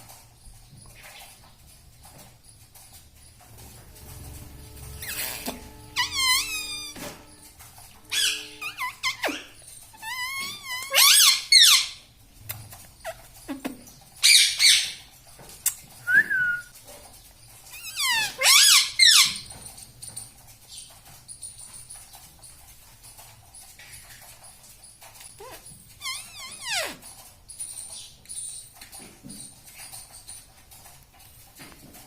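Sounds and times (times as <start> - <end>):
parrot screeching and squawking: 4.9 - 7.4, 8.0 - 12.0, 17.7 - 19.5, 25.4 - 27.1.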